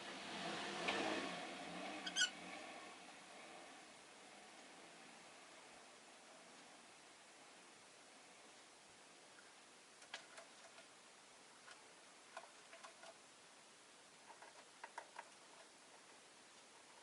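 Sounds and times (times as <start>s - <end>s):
bird clicking and tapping in cage: 11.6s - 13.2s, 14.2s - 16.1s.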